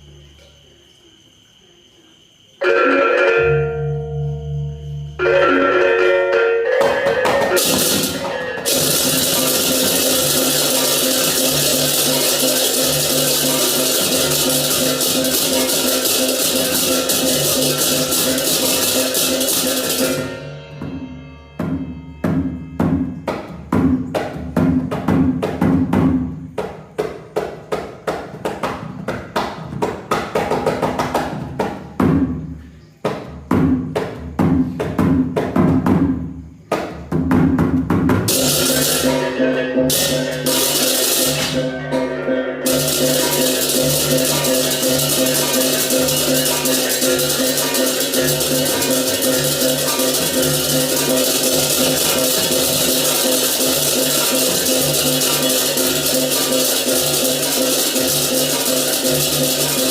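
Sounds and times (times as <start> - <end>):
pitched percussion strokes: 2.6 - 25.0, 38.2 - 59.9
clashing hand cymbals: 3.4 - 22.7, 38.3 - 59.9
ringing strikes on tuned gongs: 38.3 - 59.9.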